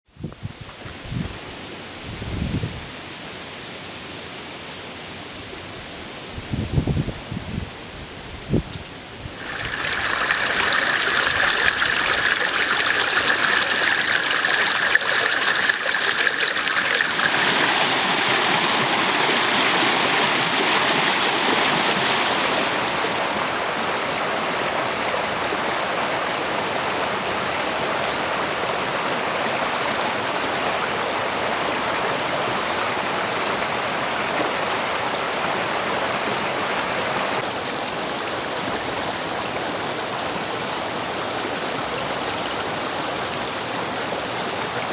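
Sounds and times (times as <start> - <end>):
stream flowing over rocks: 9.3 - 44.9.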